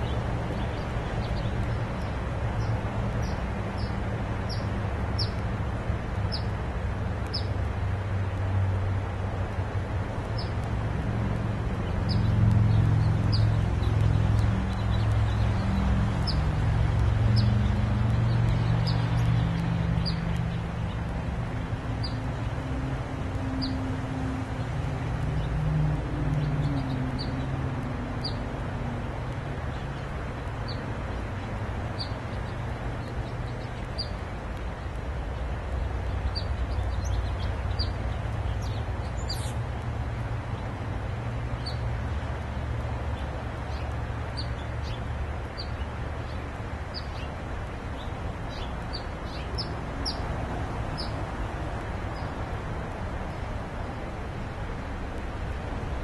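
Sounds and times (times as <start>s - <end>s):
small bird chirping: 38.6s - 39.6s.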